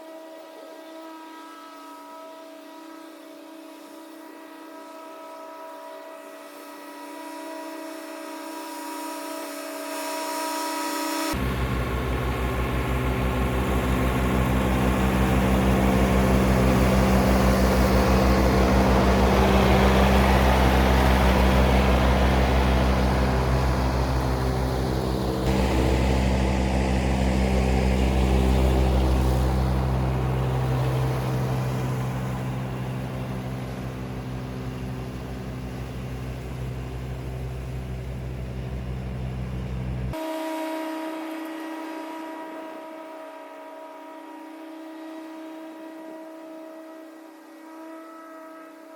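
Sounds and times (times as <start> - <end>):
mower deck cutting grass: 11.3 - 40.1
diesel tractor engine running: 11.4 - 40.2.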